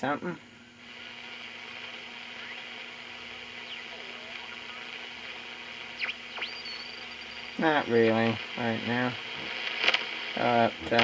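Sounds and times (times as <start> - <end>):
radio static hissing: 0.0 - 11.0
faint sliding radio whistles: 2.2 - 3.0, 3.6 - 5.0, 5.9 - 7.6.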